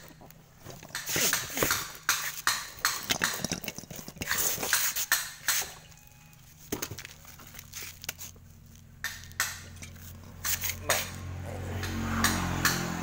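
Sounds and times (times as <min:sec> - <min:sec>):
metal tools clinking and knocking: 0:00.0 - 0:08.2, 0:09.1 - 0:11.2.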